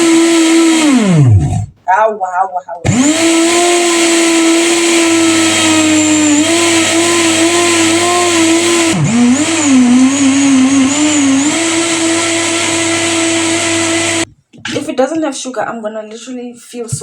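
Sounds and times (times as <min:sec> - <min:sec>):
blender motor running: 0:00.0 - 0:01.7, 0:02.9 - 0:14.3.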